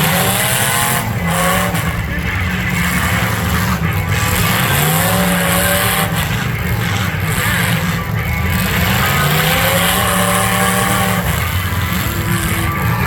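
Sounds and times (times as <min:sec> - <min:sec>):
arena noise: 0:00.0 - 0:13.0
car engines revving: 0:00.0 - 0:13.0.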